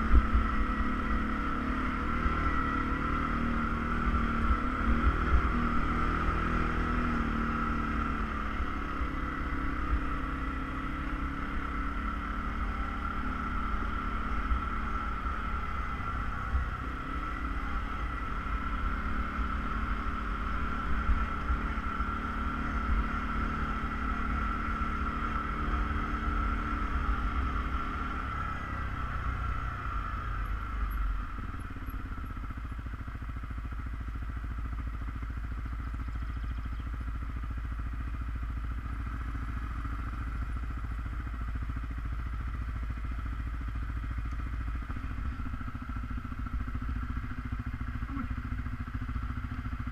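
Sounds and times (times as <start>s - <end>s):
atv engine running: 0.0s - 49.9s.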